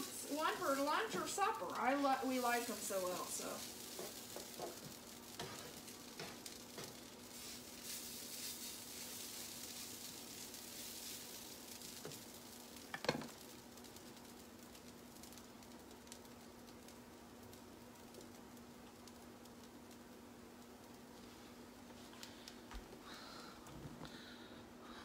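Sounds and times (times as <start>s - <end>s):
food sizzling and crackling: 0.0s - 23.5s
low steady hum: 0.0s - 25.0s.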